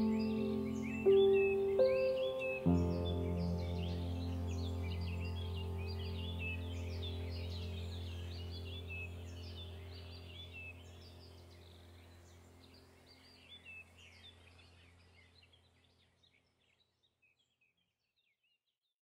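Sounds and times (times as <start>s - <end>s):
small birds chirping: 0.0s - 18.8s
low steady hum: 2.7s - 15.6s.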